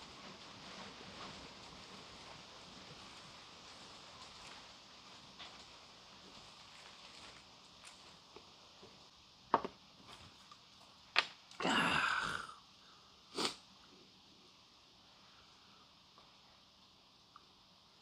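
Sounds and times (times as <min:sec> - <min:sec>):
breathy sound: 0:11.6 - 0:13.0.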